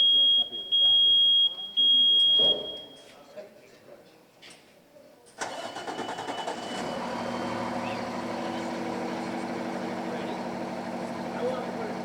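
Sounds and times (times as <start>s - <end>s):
diesel engine starting and idling: 5.4s - 12.0s.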